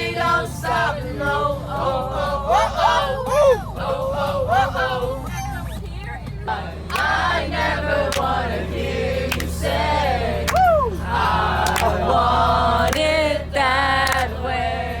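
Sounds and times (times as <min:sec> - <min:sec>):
group singing loudly: 0:00.0 - 0:05.6, 0:06.4 - 0:15.0
low hum: 0:00.1 - 0:15.0
person whooping: 0:02.5 - 0:03.7, 0:10.5 - 0:11.0.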